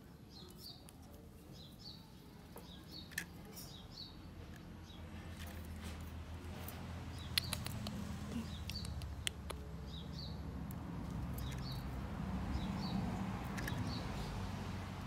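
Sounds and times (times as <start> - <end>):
small bird chirping: 0.2 - 5.7, 7.1 - 14.4
sharp clicks: 7.2 - 9.7.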